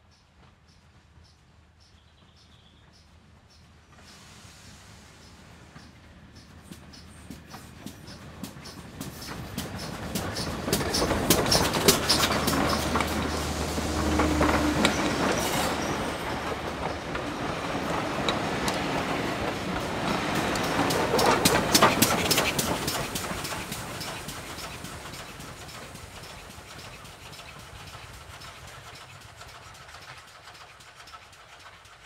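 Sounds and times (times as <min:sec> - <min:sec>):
steam train passing: 0:00.0 - 0:32.0
wheels clicking over rail joints: 0:05.7 - 0:32.0.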